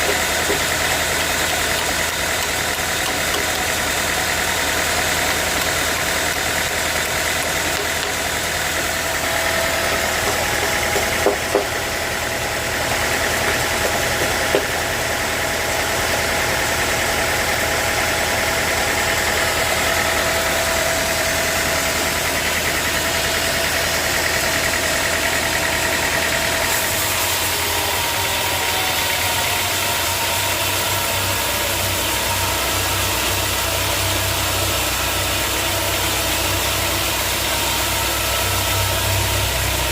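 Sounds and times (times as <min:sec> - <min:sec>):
sawmill machinery running: 0:00.0 - 0:39.9
sharp knocks: 0:10.0 - 0:11.8, 0:13.4 - 0:14.8.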